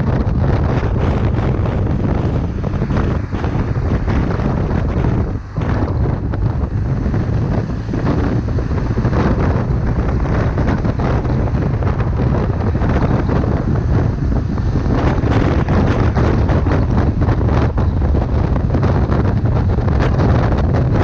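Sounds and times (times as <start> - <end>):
motorcycle engine running: 0.0 - 21.0
wind buffeting microphone: 0.0 - 21.0.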